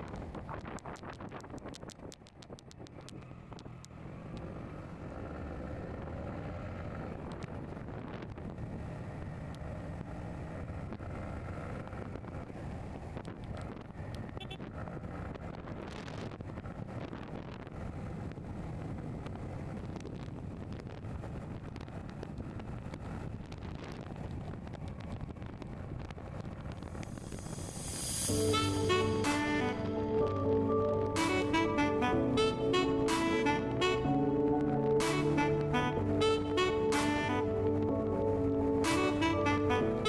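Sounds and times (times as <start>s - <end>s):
wind buffeting microphone: 0.0s - 5.2s, 5.8s - 28.6s
vehicle road and engine noise: 0.0s - 40.0s.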